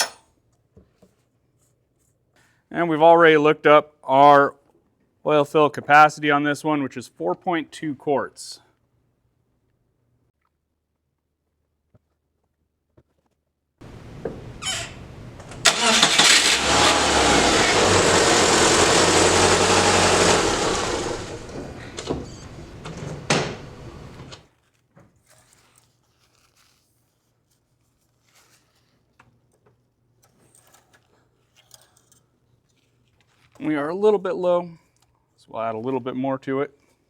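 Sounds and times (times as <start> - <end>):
car engine starting and running: 13.8 - 24.4.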